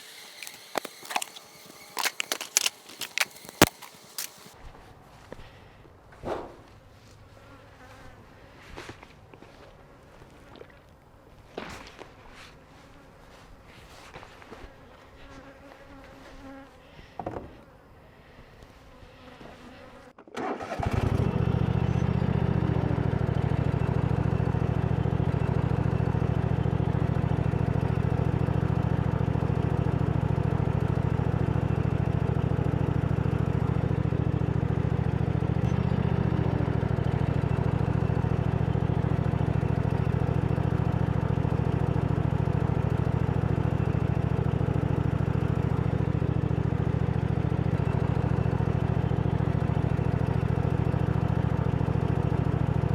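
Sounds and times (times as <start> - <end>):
leaf blower running: 0.0 - 4.6, 20.4 - 52.9.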